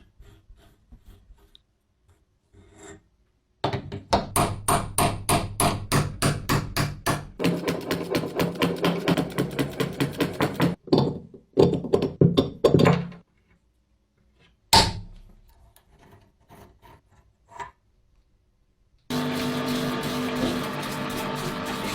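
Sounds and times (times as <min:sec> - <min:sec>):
rapid hammer strikes: 0:04.2 - 0:10.8.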